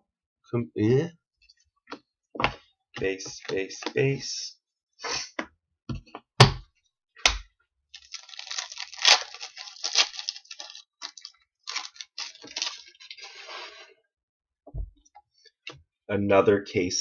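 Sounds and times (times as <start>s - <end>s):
cards crackling and rustling: 3.0s - 4.0s, 8.0s - 13.5s.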